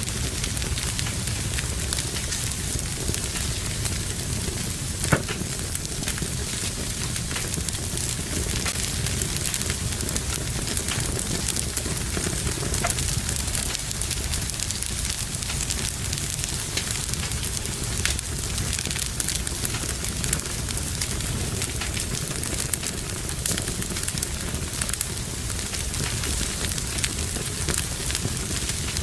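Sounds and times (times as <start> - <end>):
fire crackling in a fireplace: 0.0 - 29.0.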